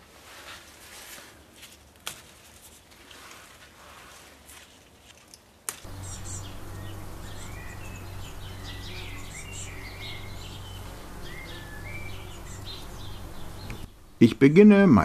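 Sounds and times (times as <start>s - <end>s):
small birds chirping and whistling: 5.9s - 13.9s
low hum: 5.9s - 14.2s.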